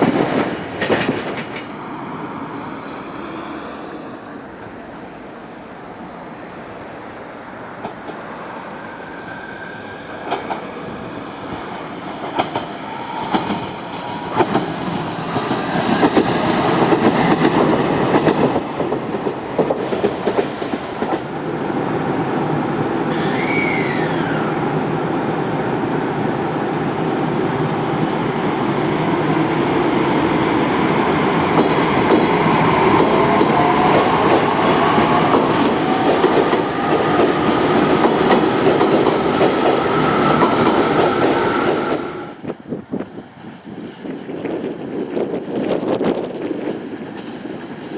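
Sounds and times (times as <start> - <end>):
electric train running: 10.0 - 21.8.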